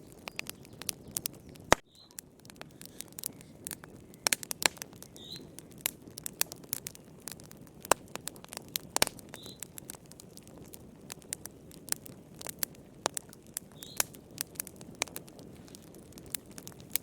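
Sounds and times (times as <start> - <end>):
wood fire crackling: 0.0 - 17.0
faint high chirps: 1.8 - 2.2.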